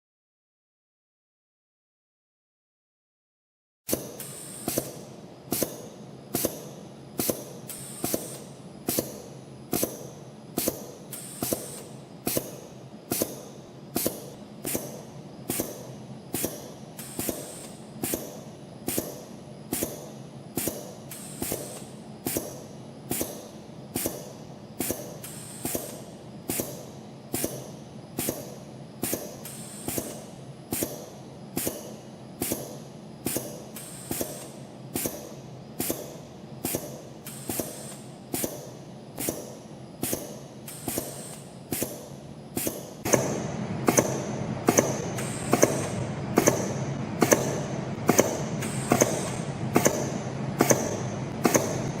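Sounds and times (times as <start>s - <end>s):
sharp machine clicks: 3.9s - 52.0s
machine hum: 24.4s - 52.0s.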